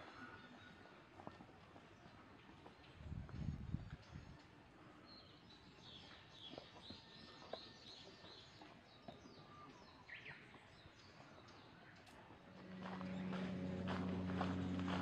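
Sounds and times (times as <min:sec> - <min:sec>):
faint birdsong: 0:03.7 - 0:15.0.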